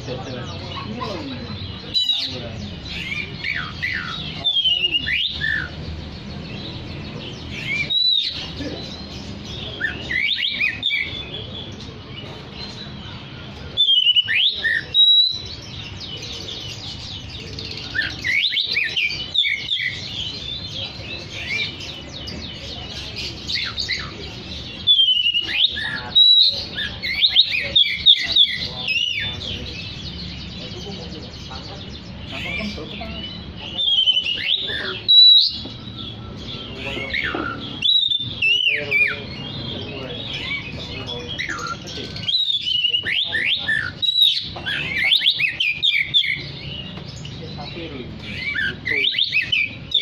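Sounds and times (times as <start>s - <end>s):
bird singing whistling song: 1.9s - 5.8s, 7.5s - 8.5s, 9.6s - 11.4s, 13.8s - 15.7s, 24.7s - 29.4s, 33.1s - 40.7s, 41.3s - 47.0s, 48.3s - 50.0s.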